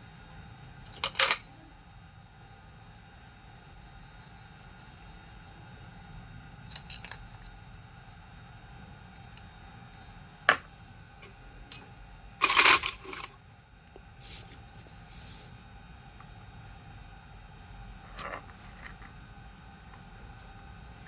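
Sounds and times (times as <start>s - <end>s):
faint steady hum: 0.0s - 21.0s
small hard parts clattering: 6.7s - 7.6s, 12.4s - 13.4s.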